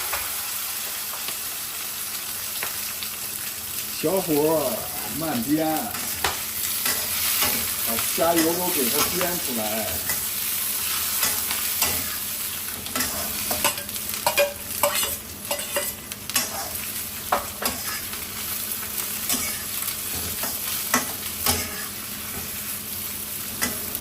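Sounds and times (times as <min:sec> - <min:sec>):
shrimp sizzling in oil: 0:00.0 - 0:24.0
spatula scraping pan: 0:06.0 - 0:18.2, 0:18.9 - 0:22.6.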